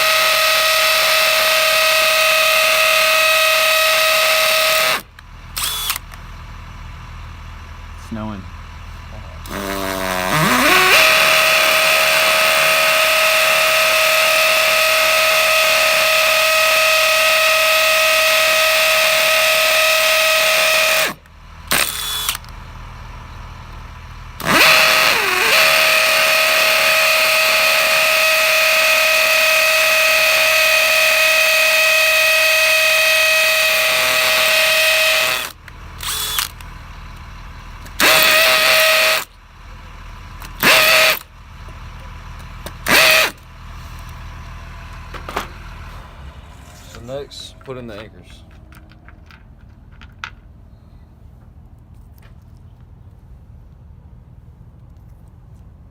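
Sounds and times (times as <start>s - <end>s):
drill trigger blip: 0.0s - 6.2s, 9.4s - 22.6s, 24.4s - 36.7s, 37.9s - 39.4s, 40.4s - 41.3s, 42.6s - 43.4s
power drill whining: 0.0s - 6.2s, 9.4s - 22.6s, 24.4s - 36.7s, 37.8s - 39.4s, 40.4s - 41.3s, 42.4s - 44.2s.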